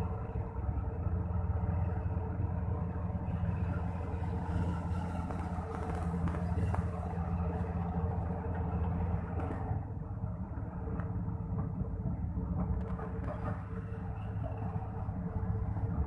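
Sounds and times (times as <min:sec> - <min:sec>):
excavator diesel engine drone: 0:00.0 - 0:16.0.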